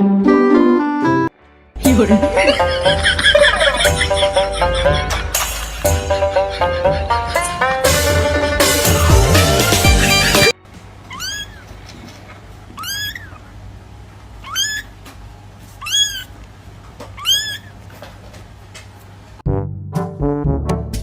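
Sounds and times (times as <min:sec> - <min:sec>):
cat meowing: 0:11.1 - 0:11.7, 0:12.8 - 0:13.5, 0:14.4 - 0:14.9, 0:15.8 - 0:16.4, 0:17.2 - 0:17.8.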